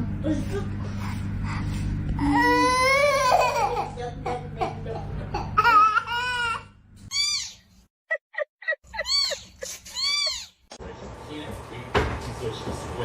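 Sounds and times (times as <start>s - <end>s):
steady low hum: 0.0s - 7.1s.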